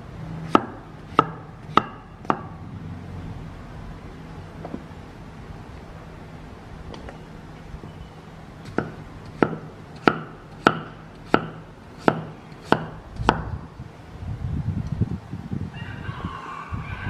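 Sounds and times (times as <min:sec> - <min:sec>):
knife chopping on a cutting board: 0:00.5 - 0:02.5, 0:08.7 - 0:13.4.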